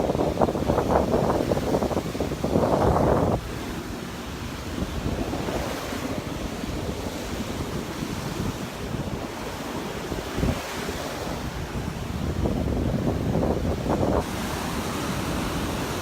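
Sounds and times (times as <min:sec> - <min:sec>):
surf washing onto beach: 0:00.0 - 0:16.0
wind buffeting microphone: 0:00.0 - 0:16.0.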